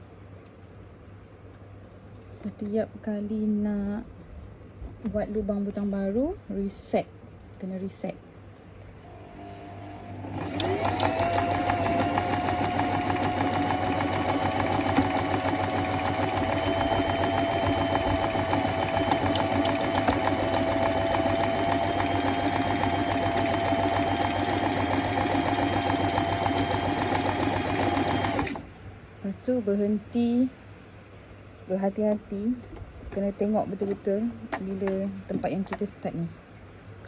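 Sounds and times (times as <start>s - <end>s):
sewing machine running: 9.1s - 28.7s.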